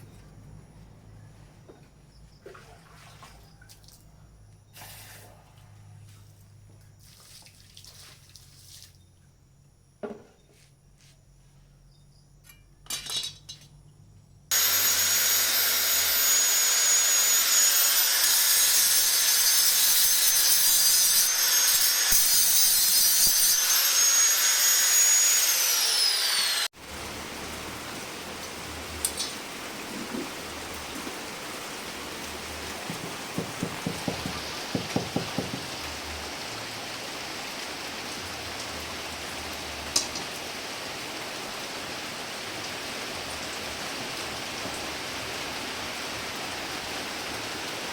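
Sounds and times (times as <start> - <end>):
power tool grinding steel: 14.5 - 26.7
light knocks: 32.8 - 35.7.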